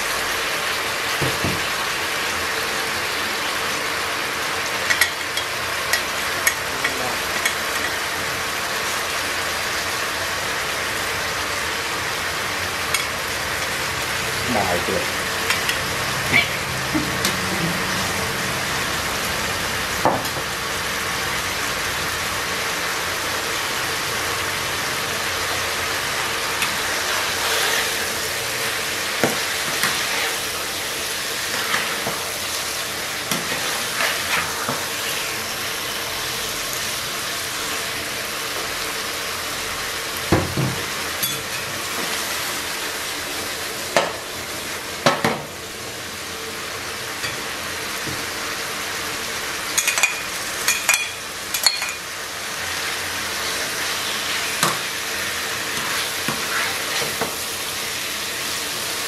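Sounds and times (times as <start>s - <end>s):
food sizzling in oil: 0.0s - 59.0s
metal spatula scraping pan: 33.3s - 35.3s, 55.7s - 57.2s.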